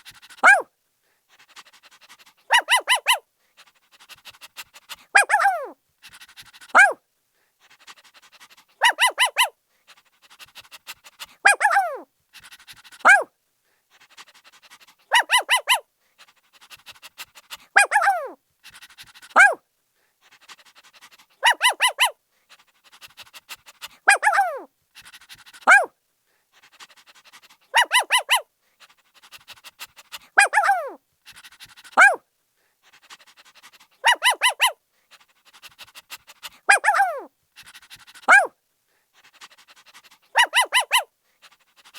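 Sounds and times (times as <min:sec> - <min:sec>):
puppy panting: 0:00.0 - 0:00.7, 0:01.3 - 0:07.0, 0:07.6 - 0:41.9
puppy yapping and barking: 0:00.4 - 0:00.7, 0:02.5 - 0:03.2, 0:05.2 - 0:05.8, 0:06.7 - 0:07.0, 0:08.8 - 0:09.5, 0:11.4 - 0:12.0, 0:13.0 - 0:13.3, 0:15.1 - 0:15.8, 0:17.8 - 0:18.4, 0:19.4 - 0:19.6, 0:21.4 - 0:22.2, 0:24.1 - 0:24.7, 0:25.6 - 0:25.9, 0:27.7 - 0:28.4, 0:30.4 - 0:31.0, 0:32.0 - 0:32.2, 0:34.0 - 0:34.8, 0:36.7 - 0:37.3, 0:38.2 - 0:38.5, 0:40.3 - 0:41.1.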